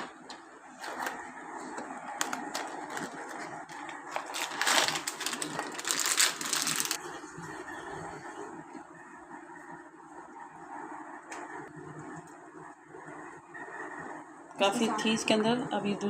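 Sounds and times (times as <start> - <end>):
scraping or crinkling: 0.7 - 7.0.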